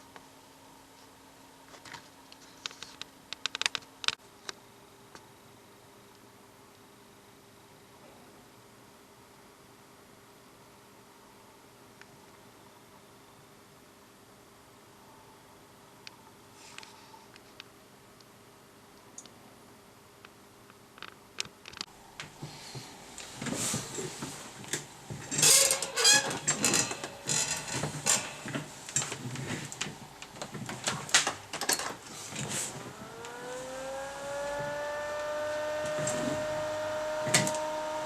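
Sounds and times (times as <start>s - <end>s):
tools and parts clattering: 25.2s - 29.8s, 30.6s - 32.6s
small electric motor whine: 32.7s - 38.0s.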